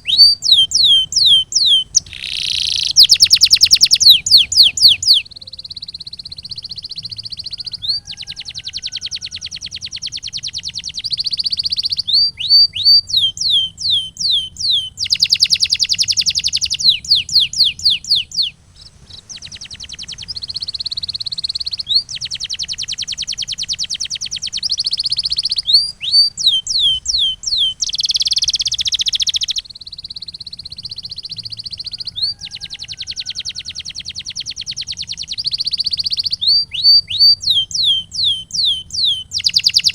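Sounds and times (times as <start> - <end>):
canary singing trills: 0.0 - 39.9
faint low hum: 0.0 - 39.9.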